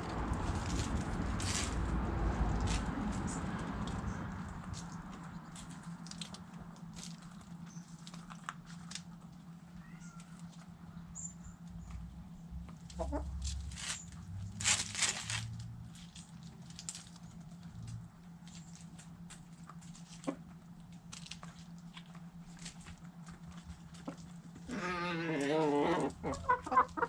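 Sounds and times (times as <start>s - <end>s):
chickens pecking: 0.0s - 27.0s
low steady hum: 0.0s - 27.0s
chicken clucking: 12.8s - 13.4s, 23.4s - 27.0s.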